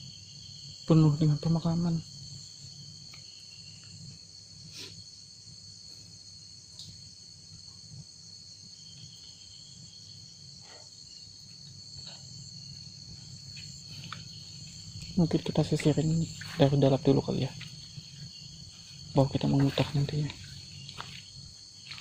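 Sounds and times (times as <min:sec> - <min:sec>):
crickets and insects chirping: 0:00.0 - 0:22.0.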